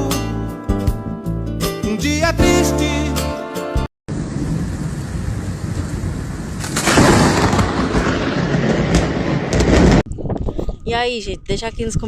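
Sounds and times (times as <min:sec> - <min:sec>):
thunder rumbling: 0:04.1 - 0:10.4
storm rushing noise: 0:04.1 - 0:11.0.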